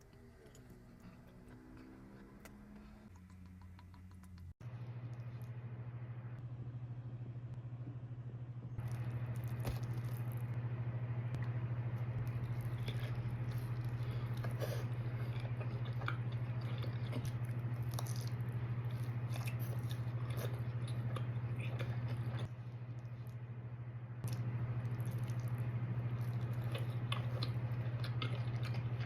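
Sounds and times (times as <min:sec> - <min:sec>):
steady low hum: 0:00.0 - 0:29.0
chewing and crunching pizza: 0:08.8 - 0:10.6, 0:12.2 - 0:23.4, 0:24.2 - 0:29.0.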